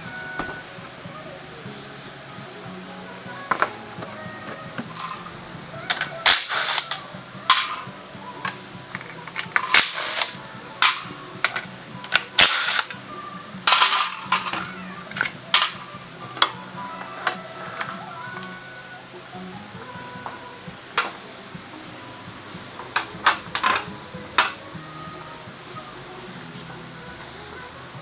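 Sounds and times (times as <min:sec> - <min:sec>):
air hissing bursts: 0:00.0 - 0:16.4
quiet background music: 0:00.0 - 0:28.0
metal tool clicks and clinks: 0:05.9 - 0:13.0, 0:13.7 - 0:15.8.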